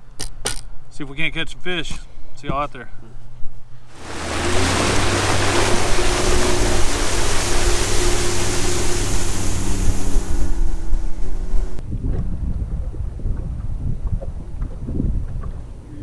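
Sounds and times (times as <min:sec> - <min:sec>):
heavy wind: 0:03.2 - 0:16.0
boat motor running: 0:03.9 - 0:11.8
water rushing: 0:03.9 - 0:11.8.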